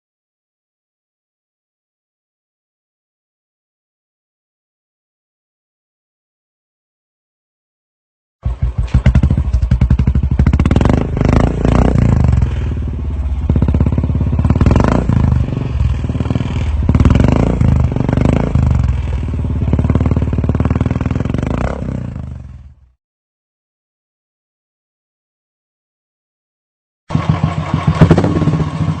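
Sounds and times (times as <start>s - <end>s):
motorcycle engine throttle blips: 8.4s - 23.0s, 27.1s - 29.0s.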